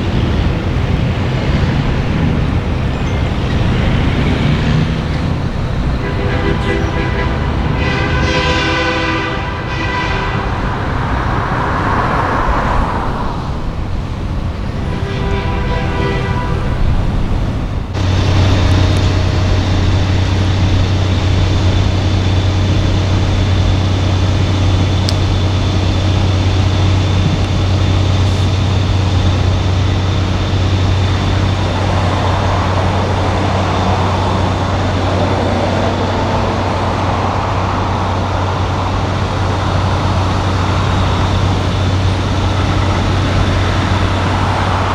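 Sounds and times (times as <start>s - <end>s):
truck air horn blasts: 0.0s - 12.8s, 14.6s - 35.5s
low diesel engine drone: 0.0s - 44.9s.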